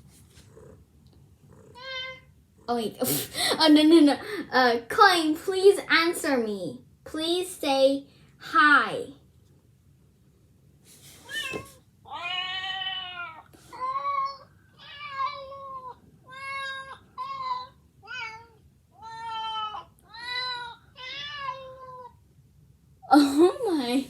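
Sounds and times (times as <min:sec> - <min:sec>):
cat meowing: 0:01.8 - 0:02.3, 0:11.2 - 0:22.2.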